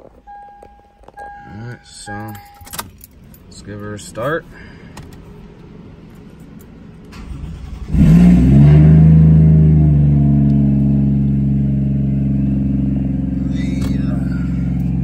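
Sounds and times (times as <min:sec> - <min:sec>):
engine starting and idling: 0:07.0 - 0:08.9.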